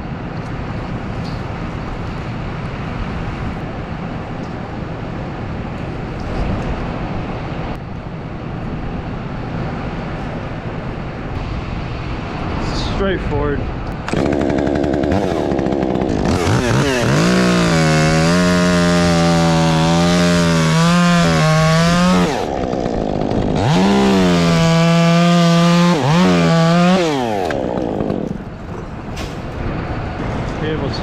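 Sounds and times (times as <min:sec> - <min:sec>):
chainsaw revving: 0:14.0 - 0:28.5.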